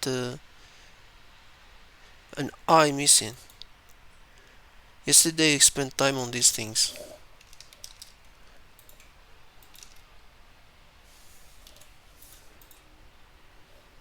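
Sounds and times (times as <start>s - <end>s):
computer mouse and keys clicking: 6.9s - 10.1s, 11.6s - 12.9s.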